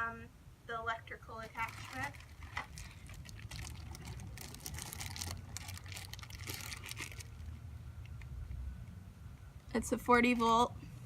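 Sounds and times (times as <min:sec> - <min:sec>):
low steady rumble: 0:00.0 - 0:11.0
rustling and crinkling handling: 0:01.4 - 0:08.3.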